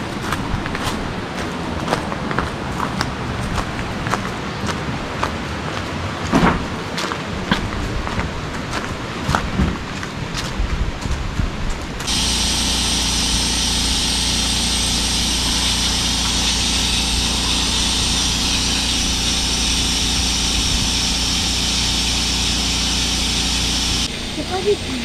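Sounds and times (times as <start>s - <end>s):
electric air pump hissing: 12.0s - 25.0s.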